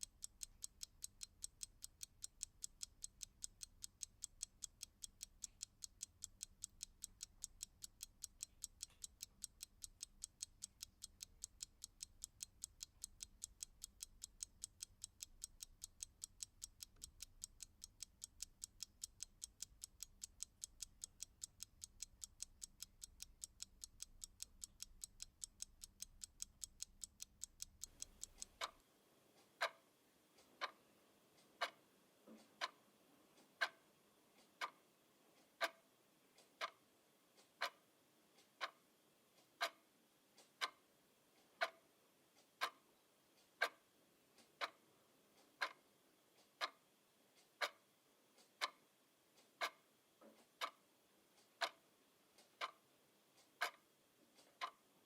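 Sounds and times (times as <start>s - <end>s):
clock ticking: 0.0s - 28.8s, 31.4s - 32.8s, 33.4s - 33.8s, 34.4s - 34.8s, 35.5s - 35.8s, 36.4s - 36.8s, 37.4s - 37.8s, 38.4s - 38.8s, 39.5s - 39.8s, 41.6s - 41.8s, 42.5s - 42.8s, 43.5s - 43.8s, 44.4s - 44.8s, 45.4s - 45.8s, 46.4s - 46.8s, 47.5s - 47.8s, 48.4s - 48.8s, 49.4s - 49.8s, 50.5s - 50.8s, 51.4s - 51.8s, 52.4s - 52.8s, 53.4s - 53.8s, 54.4s - 54.8s.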